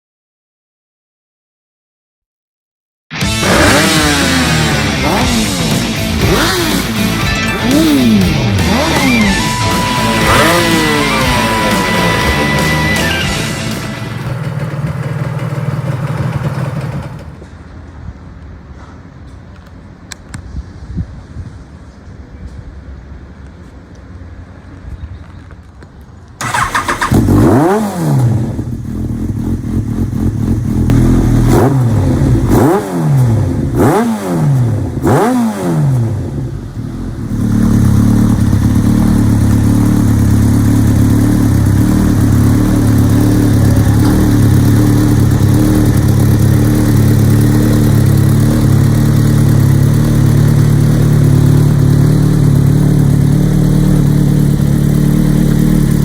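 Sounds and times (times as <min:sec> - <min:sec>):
motorcycle engine revving and idling: 0:03.2 - 0:17.5, 0:26.4 - 0:56.0.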